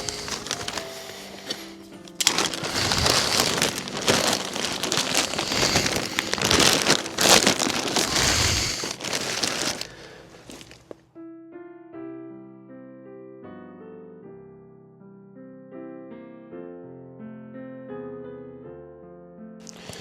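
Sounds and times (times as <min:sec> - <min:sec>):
dense rustling and crackling: 0:00.0 - 0:11.0, 0:19.7 - 0:20.0.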